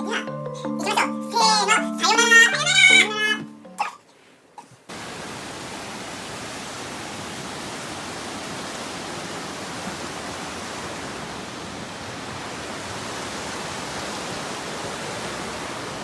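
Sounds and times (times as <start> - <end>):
waterfall rushing: 4.9 - 16.0.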